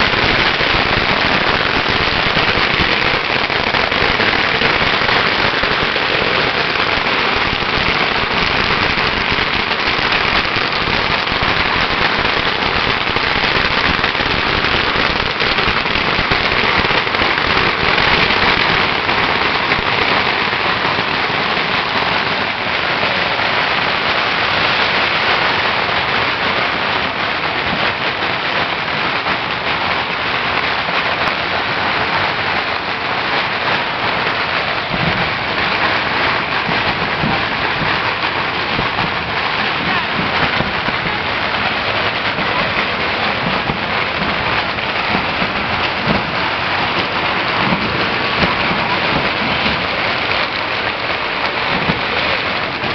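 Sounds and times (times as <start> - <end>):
firecrackers crackling: 0.0 - 52.9.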